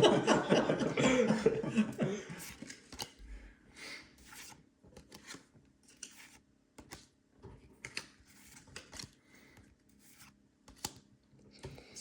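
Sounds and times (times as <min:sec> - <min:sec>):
trading cards rustling and clicking: 0:02.4 - 0:03.2, 0:04.2 - 0:07.1, 0:07.7 - 0:11.9.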